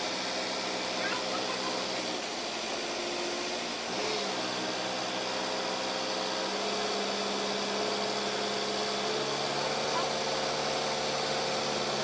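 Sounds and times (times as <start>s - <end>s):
loader engine running: 6.5s - 12.0s.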